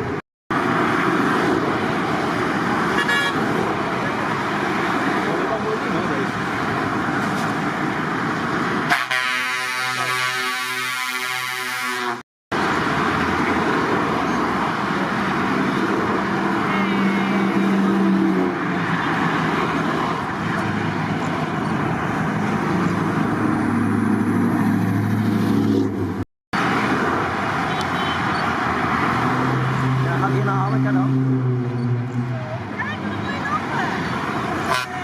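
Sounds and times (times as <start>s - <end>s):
heavy trucks driving past: 0.0s - 35.0s
road noise: 0.0s - 35.0s
truck horn: 2.9s - 3.5s, 8.9s - 12.2s, 16.6s - 18.0s, 27.7s - 28.4s, 34.6s - 35.0s.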